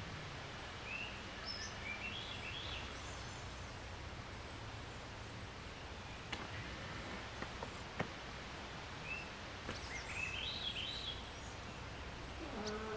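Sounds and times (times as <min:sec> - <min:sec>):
outdoor background hiss: 0:00.0 - 0:12.9.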